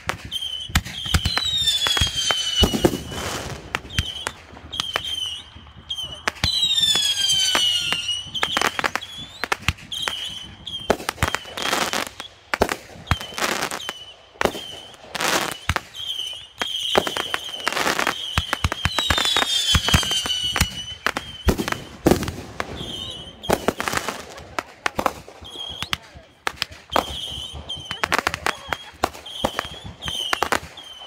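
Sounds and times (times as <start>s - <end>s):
firework whistles: 0.0s - 31.0s
fireworks banging and crackling: 0.0s - 31.0s.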